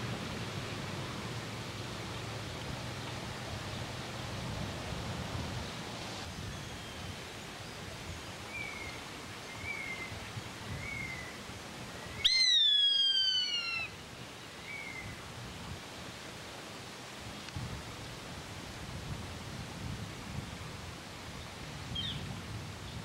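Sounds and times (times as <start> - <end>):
outdoor hiss: 0.0 - 23.0
short bird chirps: 12.2 - 13.8
bird's falling cry: 12.2 - 13.9.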